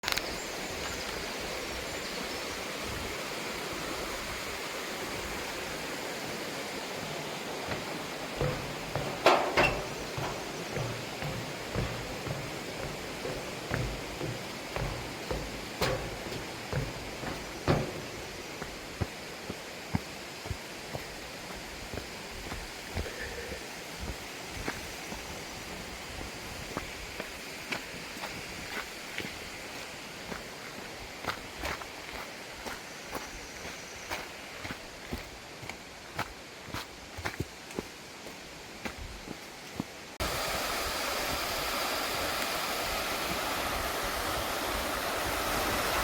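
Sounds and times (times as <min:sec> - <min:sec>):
stream rushing: 0:02.4 - 0:32.7, 0:40.0 - 0:46.0
soft knocks: 0:07.7 - 0:19.0.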